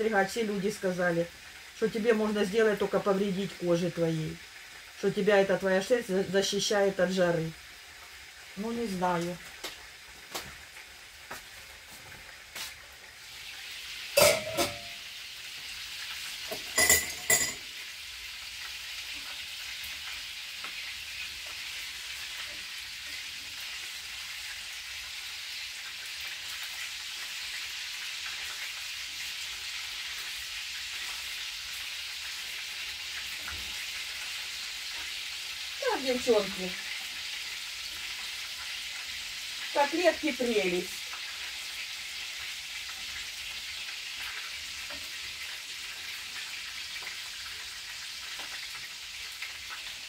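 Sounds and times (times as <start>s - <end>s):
cutlets sizzling in oil: 0.0s - 50.0s
utensil clanking against pan: 14.2s - 15.0s, 16.5s - 17.7s.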